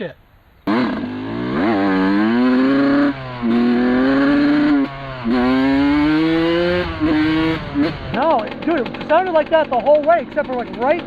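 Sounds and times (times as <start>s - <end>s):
two-stroke motorcycle engine revving: 0.6s - 11.0s.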